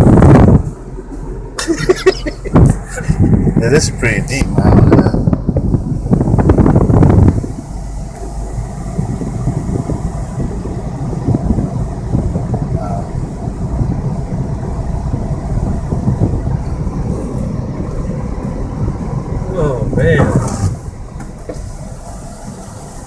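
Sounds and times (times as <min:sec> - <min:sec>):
car engine rumble: 0:00.0 - 0:23.0.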